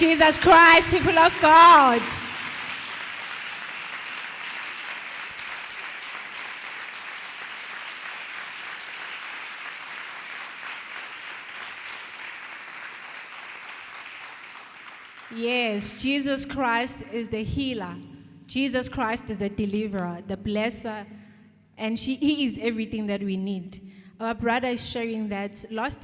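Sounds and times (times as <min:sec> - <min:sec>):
crowd clapping: 0:00.0 - 0:15.4.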